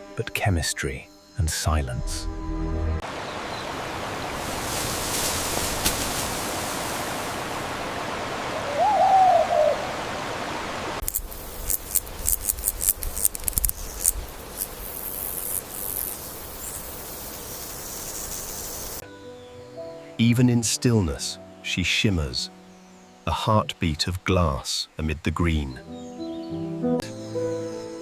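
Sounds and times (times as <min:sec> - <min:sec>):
steady rainforest hiss: 0:00.1 - 0:02.2, 0:03.0 - 0:28.0
animal call rising and falling: 0:08.5 - 0:10.0
sharp clicks and high chirps: 0:11.0 - 0:16.8.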